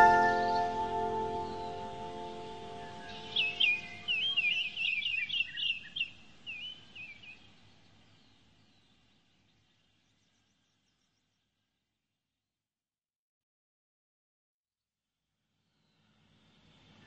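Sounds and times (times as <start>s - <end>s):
bird chirping: 0.0s - 11.4s.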